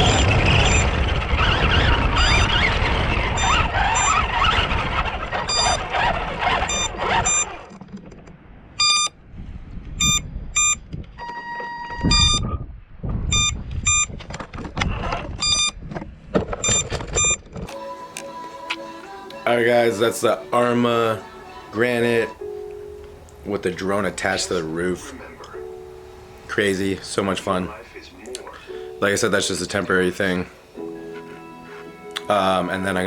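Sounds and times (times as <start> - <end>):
short electronic beeps: 0.0 - 0.9, 3.4 - 4.1, 5.5 - 5.8, 6.7 - 7.6, 8.8 - 9.2, 10.0 - 12.6, 13.3 - 14.1, 15.4 - 15.8, 16.6 - 17.4
long electronic tone: 0.0 - 1.0, 2.1 - 2.5, 3.4 - 4.2, 5.5 - 5.8, 6.7 - 7.5, 8.8 - 9.2, 10.0 - 12.6, 13.3 - 14.1, 15.4 - 15.8
toy truck motor and tyres: 3.3 - 7.8, 8.8 - 9.1, 14.9 - 15.8.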